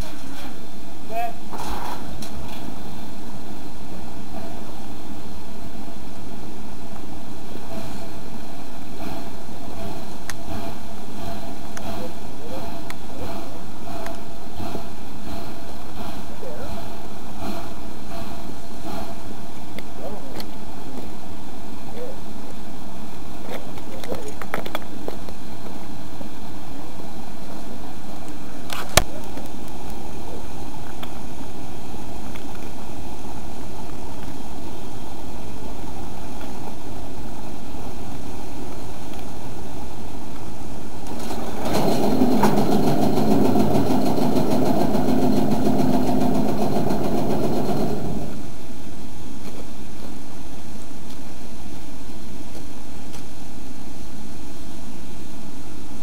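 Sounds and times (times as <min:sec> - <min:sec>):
steam locomotive working: 0:00.0 - 0:22.3, 0:40.9 - 0:49.0.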